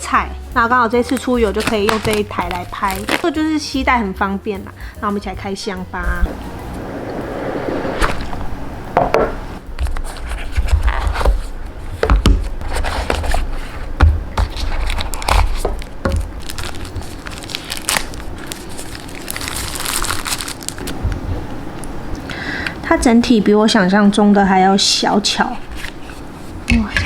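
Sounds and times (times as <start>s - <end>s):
plastic wrap crinkling: 1.0s - 3.4s, 12.7s - 21.1s
cardboard scraping: 6.2s - 20.9s.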